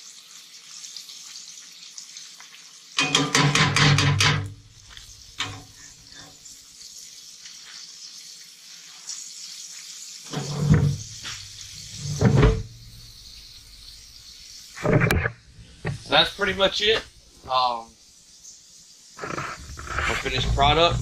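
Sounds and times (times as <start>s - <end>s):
fish sizzling in hot oil: 0.0s - 21.0s
clatters or knocks: 3.0s - 4.6s.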